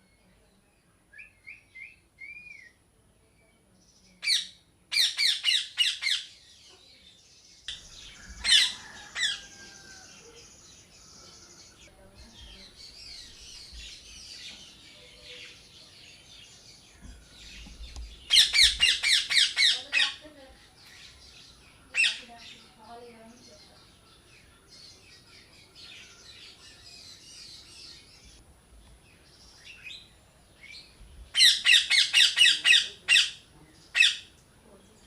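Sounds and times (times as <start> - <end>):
birds chirping and chattering: 0.0 - 35.0
parrots squawking: 4.2 - 6.3, 8.0 - 10.2, 18.3 - 20.2, 21.9 - 22.3, 31.3 - 34.3.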